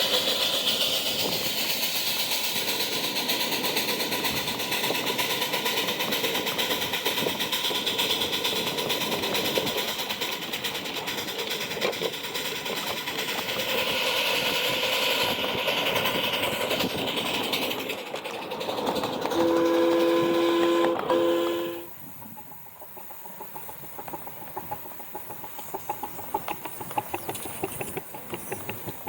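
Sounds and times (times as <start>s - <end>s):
miniature train rumbling with clicks: 0.0s - 29.0s
train whistle blasts: 19.3s - 22.0s.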